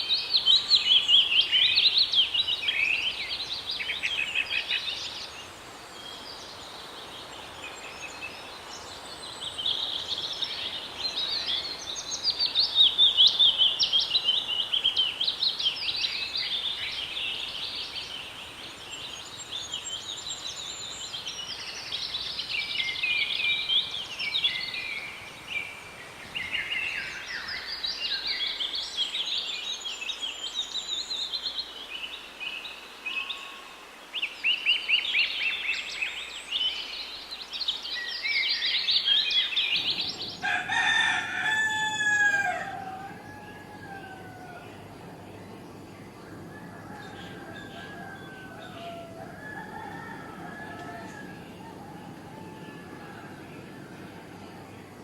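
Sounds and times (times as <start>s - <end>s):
small birds chirping: 35.5s - 41.5s, 42.6s - 55.0s.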